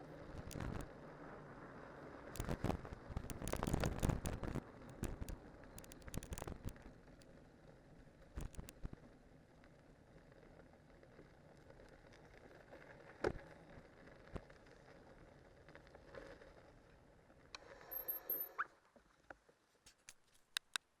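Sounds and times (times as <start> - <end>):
bike tyres rolling on snow: 0.1 - 17.9
scattered clicks: 0.4 - 0.9, 2.4 - 7.3, 8.4 - 8.9, 19.9 - 20.9.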